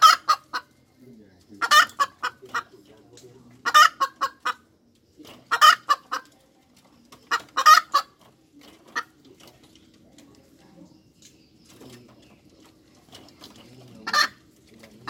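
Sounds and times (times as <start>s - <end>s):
hen cackling: 0.0s - 0.8s, 1.5s - 2.8s, 3.6s - 4.7s, 5.4s - 6.3s, 7.2s - 8.2s, 14.0s - 14.5s.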